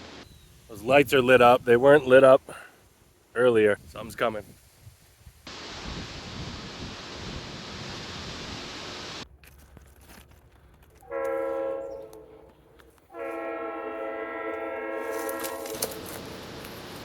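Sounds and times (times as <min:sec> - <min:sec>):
train horn blasts: 0:11.0 - 0:16.2.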